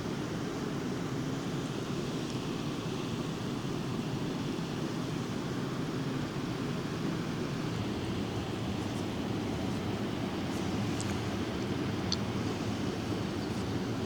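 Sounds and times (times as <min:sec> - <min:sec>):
waterfall rushing: 0:07.3 - 0:14.0.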